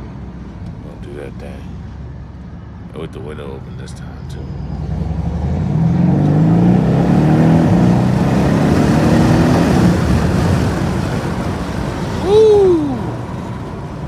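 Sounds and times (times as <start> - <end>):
road and wind noise: 0.0 - 14.0
car engine accelerating hard: 4.5 - 14.0
loud rising and falling tone: 4.6 - 10.3.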